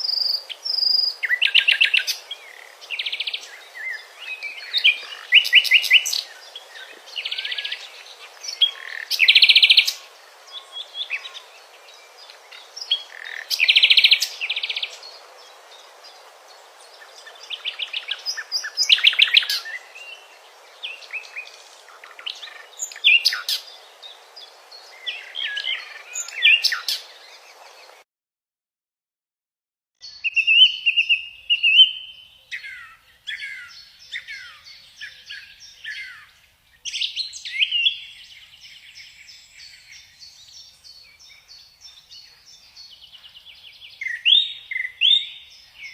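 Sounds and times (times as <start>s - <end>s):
songbirds singing: 0.0s - 28.0s, 30.0s - 45.9s
steady hiss: 0.0s - 28.0s.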